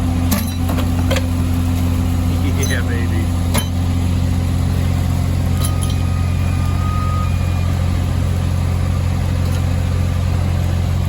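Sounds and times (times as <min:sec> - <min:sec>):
diesel engine droning: 0:00.0 - 0:11.0
thin high whine: 0:02.4 - 0:10.1.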